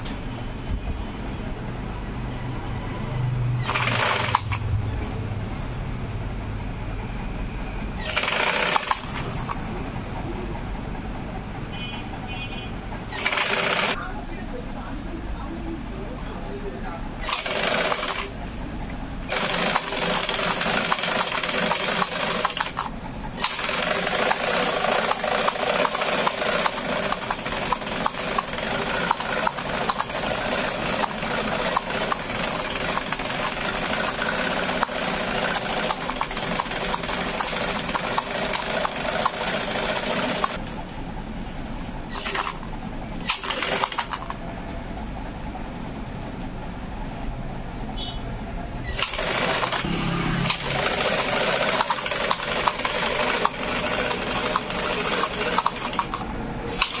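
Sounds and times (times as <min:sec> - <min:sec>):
mechanical hum: 0:00.0 - 0:57.0
rapid clicking and tapping: 0:08.0 - 0:09.6, 0:19.3 - 0:40.8, 0:50.5 - 0:57.0.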